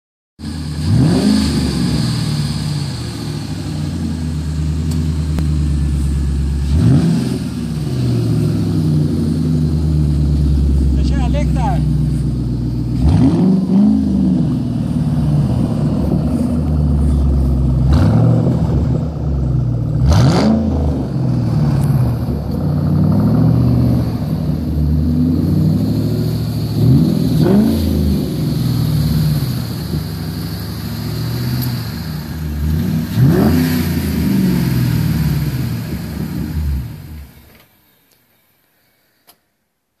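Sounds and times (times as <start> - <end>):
car engine idling and revving: 0.4 - 37.7.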